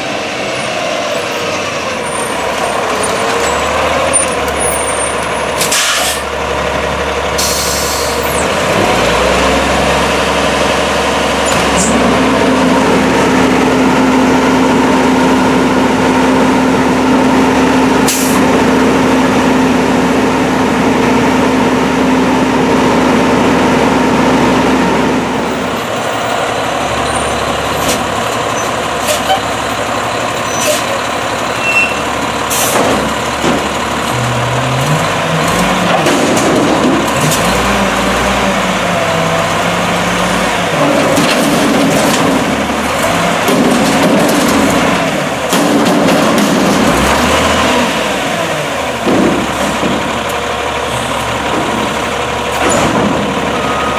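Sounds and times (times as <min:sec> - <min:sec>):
garbage truck diesel engine revving: 0:00.0 - 0:53.9
short air hisses: 0:05.6 - 0:06.3, 0:07.4 - 0:08.2.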